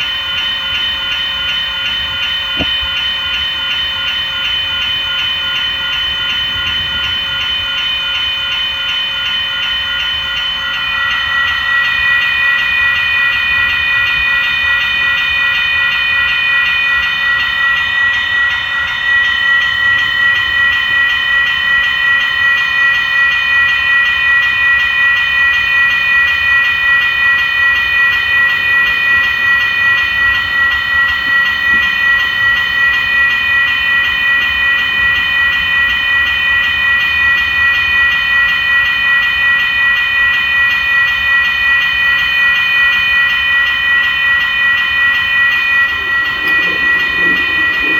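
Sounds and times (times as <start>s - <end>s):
train passing: 42.0s - 47.9s
high-pitched tones: 44.3s - 47.9s.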